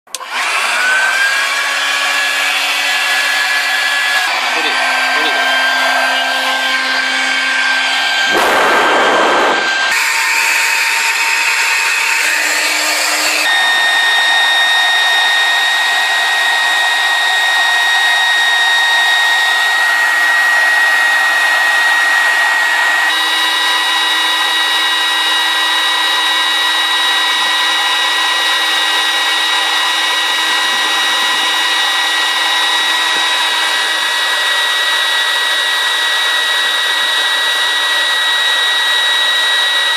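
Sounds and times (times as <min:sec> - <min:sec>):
small vacuum motor whining: 0:00.1 - 0:39.9.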